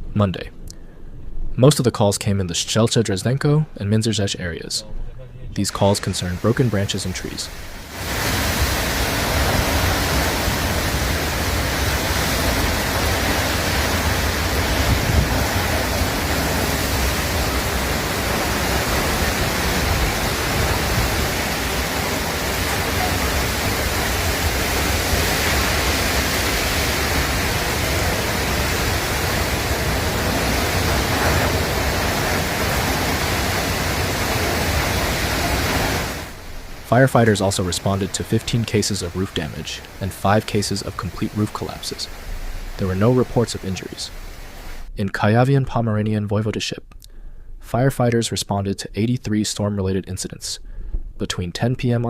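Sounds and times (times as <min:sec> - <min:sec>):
heavy rain: 0:05.8 - 0:44.9
strong wind: 0:06.1 - 0:36.9.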